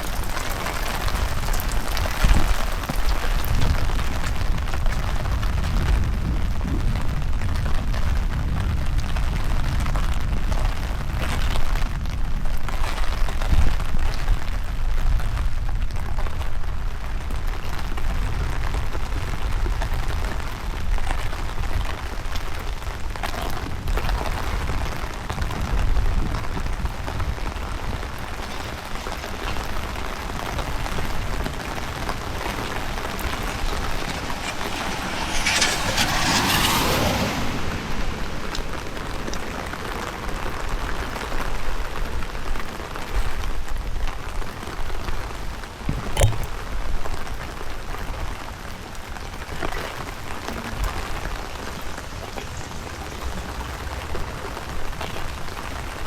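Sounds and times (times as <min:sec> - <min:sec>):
steady rain falling: 0:00.0 - 0:56.0
wind rumbling on microphone: 0:00.0 - 0:56.0
rushing swell: 0:32.2 - 0:39.2.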